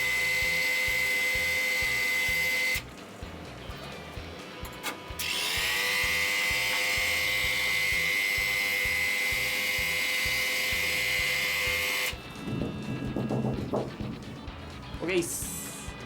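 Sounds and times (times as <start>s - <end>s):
small electric tool whining: 0.0s - 2.9s, 4.2s - 13.2s.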